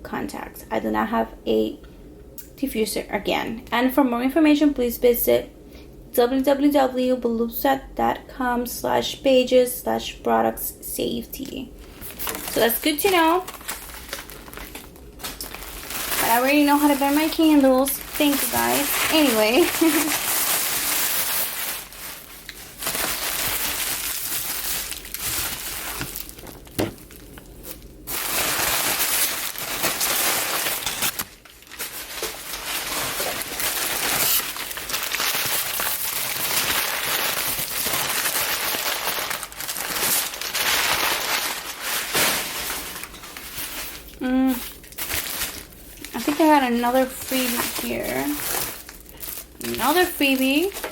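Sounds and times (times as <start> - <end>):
packing paper crinkling: 11.8 - 50.9.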